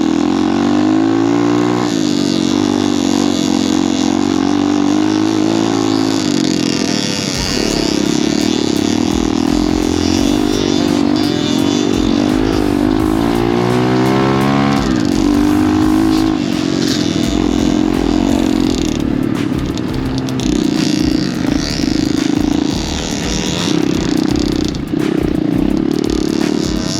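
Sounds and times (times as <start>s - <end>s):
pit bike engine revving: 0.0s - 26.9s.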